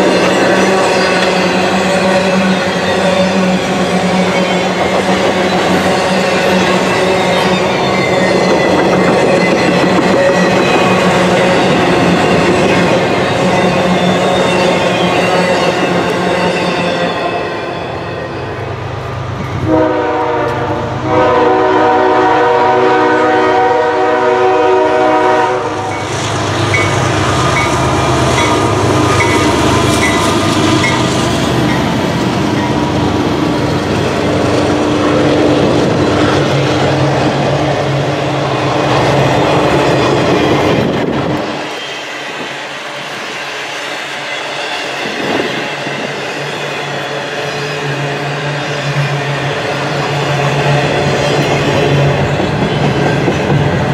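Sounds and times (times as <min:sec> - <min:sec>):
locomotive engines passing: 0:00.0 - 0:22.7, 0:24.8 - 0:53.9
train cars rolling on track: 0:00.0 - 0:53.9
locomotive air horn: 0:19.6 - 0:26.0.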